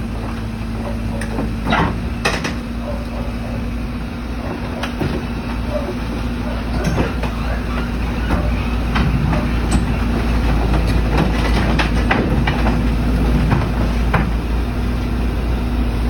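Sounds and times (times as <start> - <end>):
heavy machine engine running: 0.0 - 16.0
sharp metallic knocks and clanks: 0.8 - 3.3.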